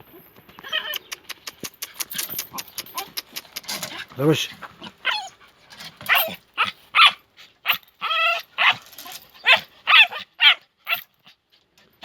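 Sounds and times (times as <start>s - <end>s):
puppy drawn-out yelp: 4.7s - 5.4s, 6.0s - 11.4s
puppy yapping: 4.7s - 5.4s, 6.0s - 11.1s.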